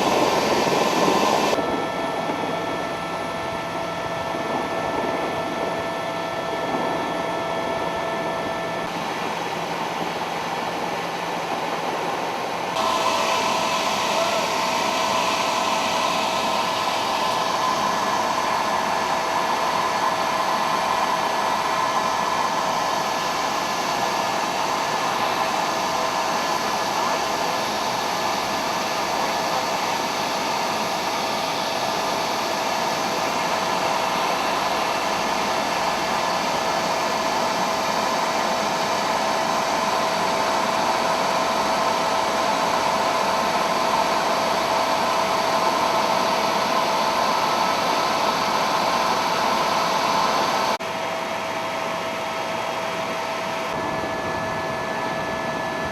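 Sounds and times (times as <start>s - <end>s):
helicopter turbine and rotor: 0.0s - 55.9s.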